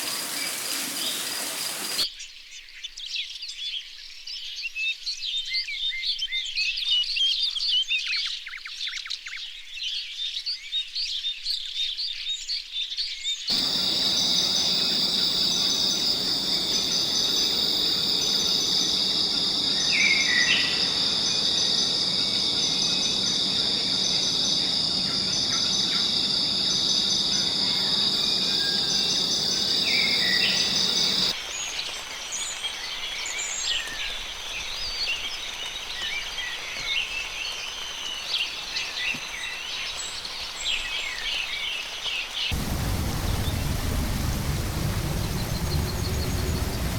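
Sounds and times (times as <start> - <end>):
birds chirping: 0.0 - 2.0, 13.5 - 31.3, 42.5 - 46.9
high-pitched insect chorus: 0.0 - 2.0, 13.5 - 31.4, 42.5 - 46.9
short rising calls: 13.5 - 31.3, 42.5 - 46.9.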